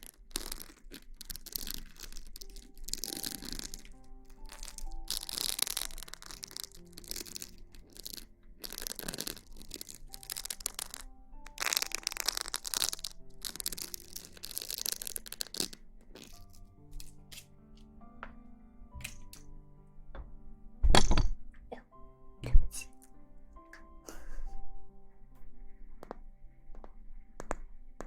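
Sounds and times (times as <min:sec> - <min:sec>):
scratchy rustling: 0:00.0 - 0:17.4
soft background music: 0:00.0 - 0:28.0.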